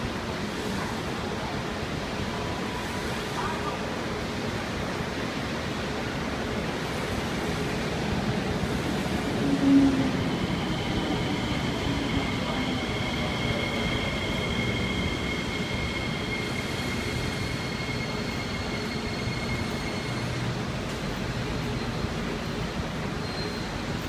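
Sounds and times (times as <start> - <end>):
train wheels rumbling: 6.0 - 24.0
high-pitched brake squeal: 9.5 - 22.1, 23.0 - 23.8.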